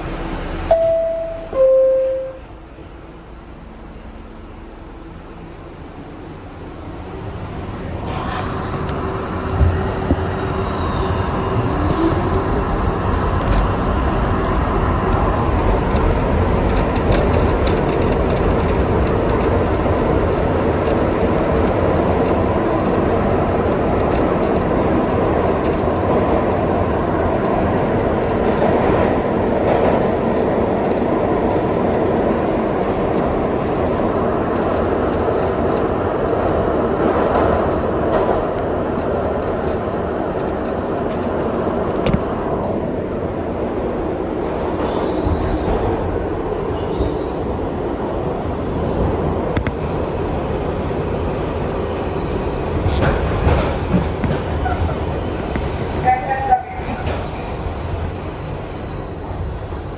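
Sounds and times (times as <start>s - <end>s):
subway wheels rumbling on track: 0.0s - 59.9s
high wheel squeal: 9.7s - 12.4s.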